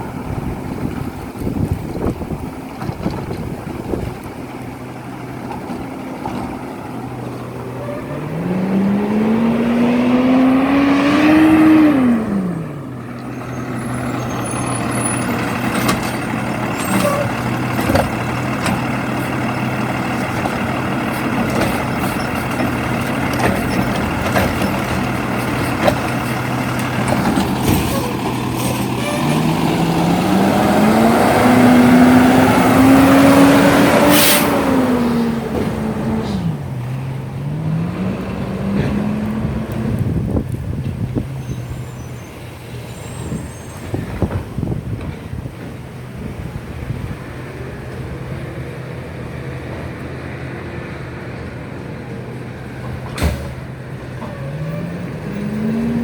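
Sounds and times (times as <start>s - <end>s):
diesel engine idling and revving: 0.0s - 56.0s
knocks and clanks: 15.3s - 29.5s.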